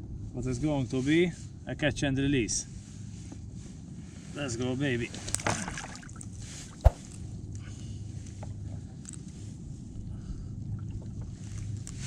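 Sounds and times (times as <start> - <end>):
low wind: 0.0 - 12.0
sharp thump: 6.8 - 7.2
water noise around kayak: 10.2 - 12.0.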